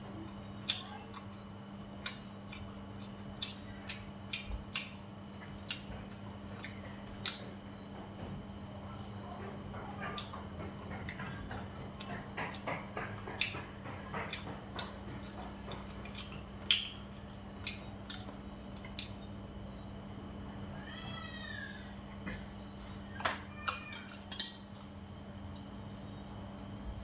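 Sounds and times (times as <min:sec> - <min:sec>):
person chewing: 0:00.2 - 0:07.4, 0:14.3 - 0:19.3.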